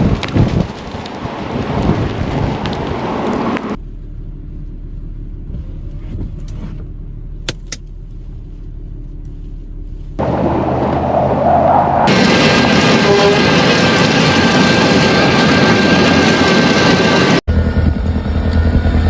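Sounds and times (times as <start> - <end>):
wind blasting microphone: 0.0 - 3.8, 10.2 - 19.0
steady low vehicle hum: 0.0 - 15.4, 16.6 - 19.0.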